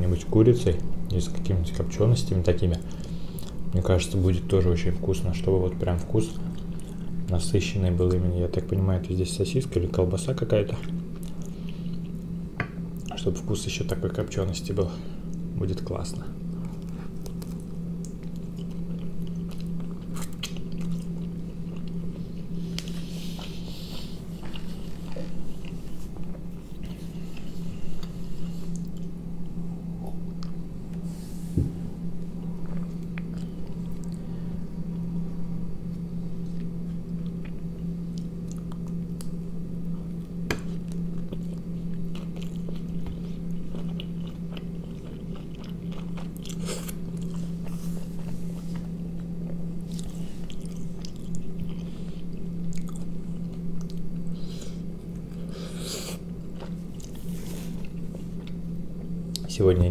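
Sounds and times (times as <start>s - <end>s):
steady low hum: 0.0s - 59.9s
person chewing food: 2.9s - 3.6s, 16.5s - 29.2s, 32.2s - 34.3s, 35.9s - 59.5s.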